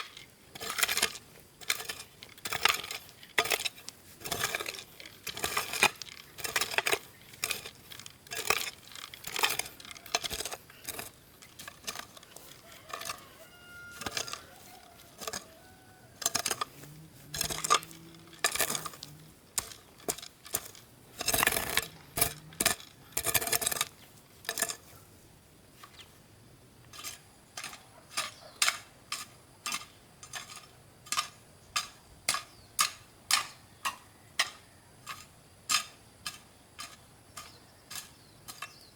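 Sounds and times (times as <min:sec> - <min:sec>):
hard objects clinking and knocking: 0:00.0 - 0:23.9.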